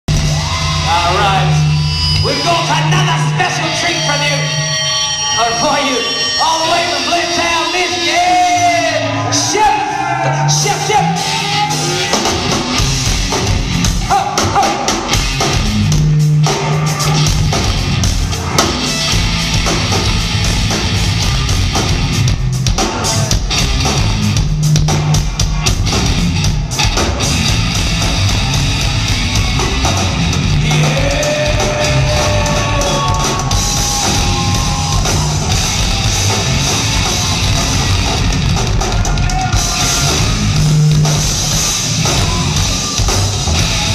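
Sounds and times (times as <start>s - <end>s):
heavy metal band playing: 0.1s - 43.9s
drum beat: 12.0s - 43.9s
person singing: 30.6s - 33.6s.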